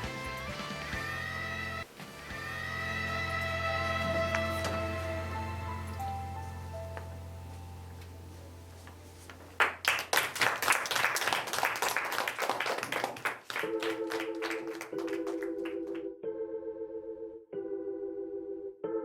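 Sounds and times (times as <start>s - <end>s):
pulsing organ-like keyboard tone: 0.0s - 8.0s, 13.6s - 19.0s
background music: 0.0s - 9.2s, 13.6s - 19.0s
small group clapping: 9.3s - 16.1s.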